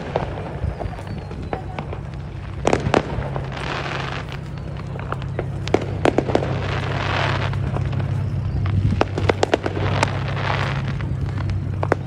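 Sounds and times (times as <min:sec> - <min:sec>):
fireworks bangs and pops: 0:00.0 - 0:12.0
fireworks crackling hiss: 0:00.0 - 0:12.0
steady low hum: 0:00.0 - 0:12.0.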